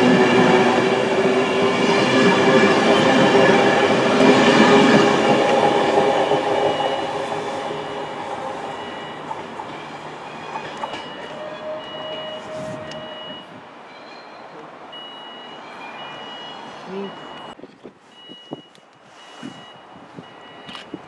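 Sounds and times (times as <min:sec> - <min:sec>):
train wheels on rails: 0:00.0 - 0:21.0.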